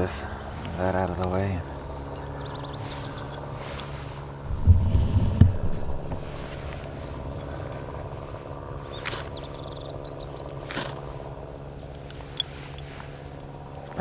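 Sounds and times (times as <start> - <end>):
steady low hum: 4.0 - 8.8
ferro rod scraping rasps: 4.4 - 7.2
heavy handling bumps: 4.4 - 7.4.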